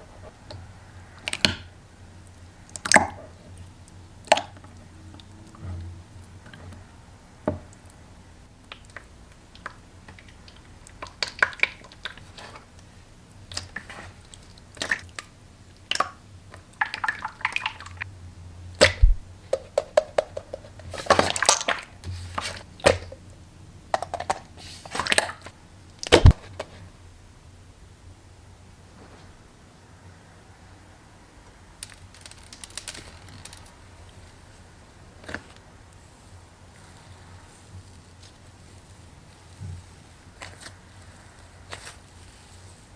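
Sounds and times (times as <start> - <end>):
slime squishing: 13.4 - 18.0, 31.7 - 42.9.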